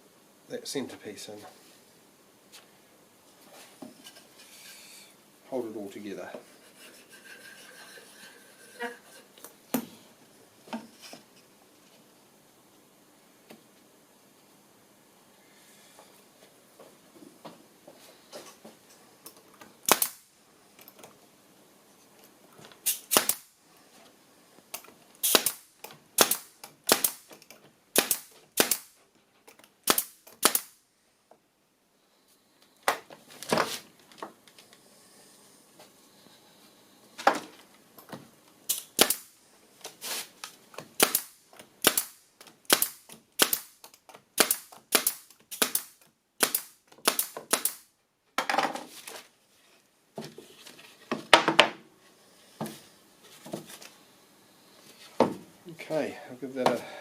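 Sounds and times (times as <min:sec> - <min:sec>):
nails driven into timber: 0:24.8 - 0:28.9, 0:29.5 - 0:30.8, 0:40.7 - 0:47.9.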